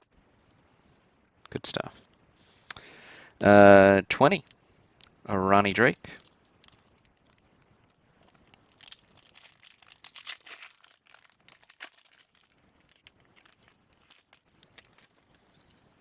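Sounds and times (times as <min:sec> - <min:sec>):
foil wrapper tearing and crinkling: 0:08.2 - 0:15.6.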